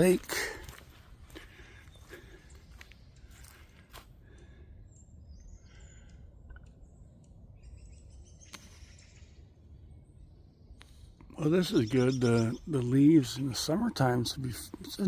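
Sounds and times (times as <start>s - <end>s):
footsteps on forest trail: 0.0s - 4.6s
songbirds chirping: 0.0s - 15.0s.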